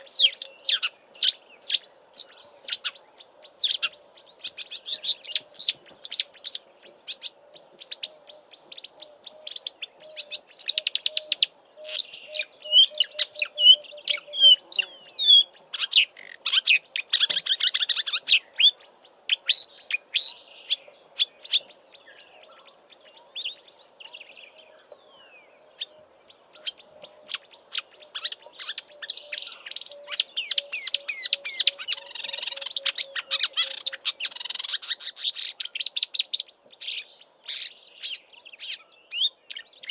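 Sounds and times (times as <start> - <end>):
warbler singing: 0.0 - 39.9.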